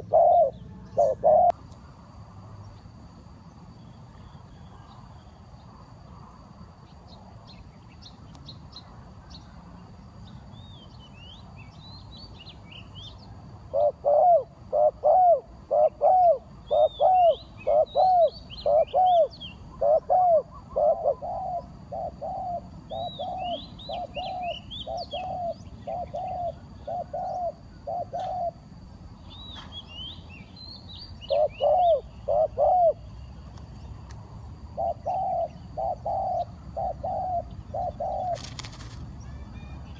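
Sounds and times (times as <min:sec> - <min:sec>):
dove cooing: 0:00.0 - 0:01.6, 0:13.7 - 0:28.7, 0:31.2 - 0:33.1, 0:34.7 - 0:39.8
small birds chirping: 0:15.8 - 0:39.9.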